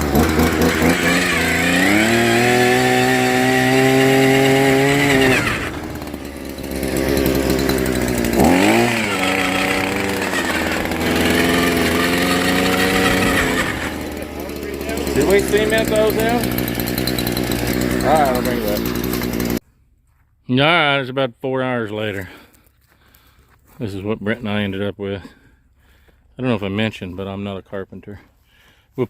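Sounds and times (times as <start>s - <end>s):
power tool motor running: 0.0s - 19.6s.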